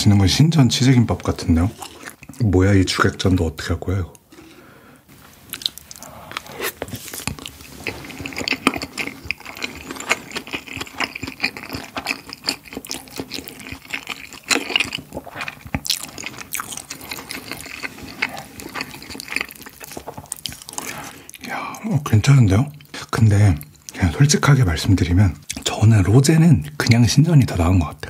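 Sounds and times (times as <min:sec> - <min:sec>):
wet sticky chewing: 0:05.5 - 0:21.9.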